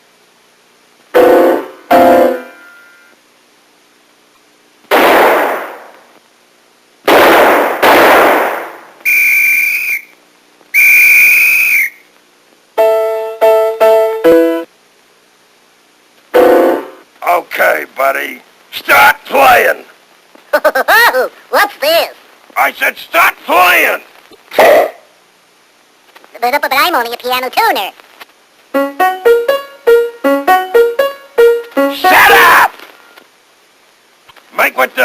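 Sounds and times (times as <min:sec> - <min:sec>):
noisy hissing bursts: 0:04.8 - 0:30.6, 0:31.4 - 0:35.0
high whistle tones: 0:09.0 - 0:12.1.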